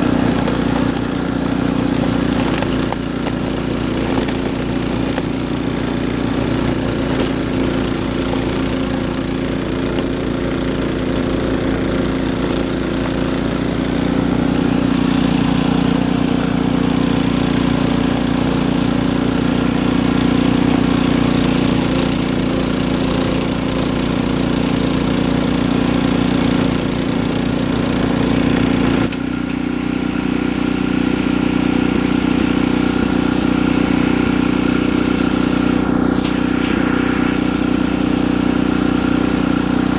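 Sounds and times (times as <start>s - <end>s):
small gas engine running: 0.0s - 39.9s
high whine: 31.2s - 39.9s.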